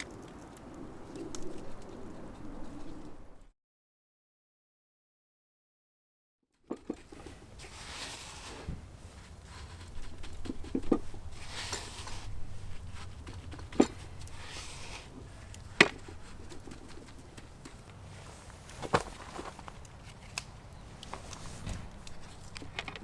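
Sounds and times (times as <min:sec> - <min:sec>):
soft rustling: 0:07.0 - 0:22.8.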